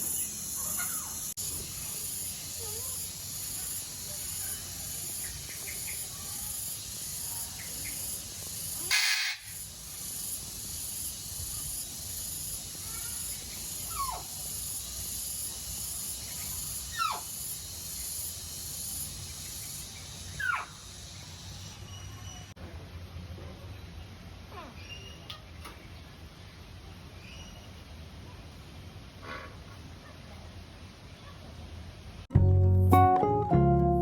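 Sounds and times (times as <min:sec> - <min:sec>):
loud burst of hissing noise: 0:00.0 - 0:21.9
steady high hiss: 0:00.0 - 0:22.6
whistled bird calls: 0:08.8 - 0:09.6.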